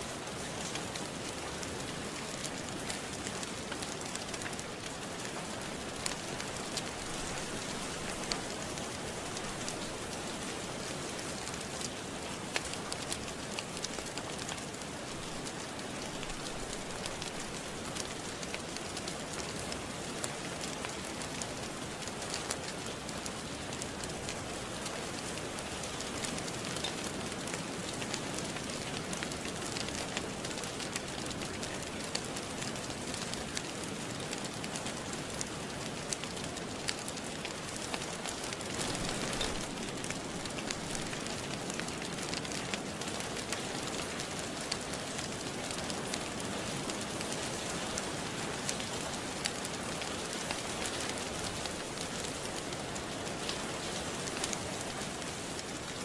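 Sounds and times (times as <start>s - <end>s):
rain hiss: 0.0s - 56.0s
wood fire crackling and popping: 0.1s - 56.0s.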